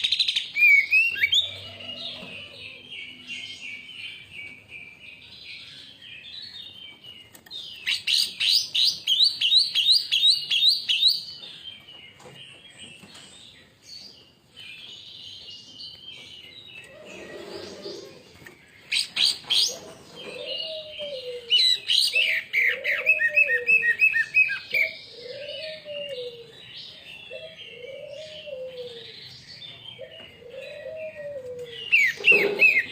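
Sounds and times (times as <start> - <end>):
bird chirping and warbling: 14.8 - 32.9.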